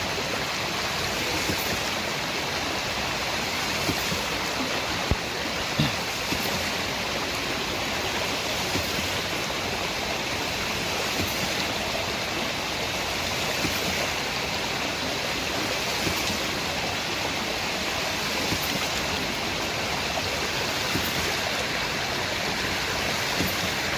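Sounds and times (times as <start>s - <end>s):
water rushing and splashing: 0.0s - 23.9s
pump valve clicking: 22.6s - 23.9s.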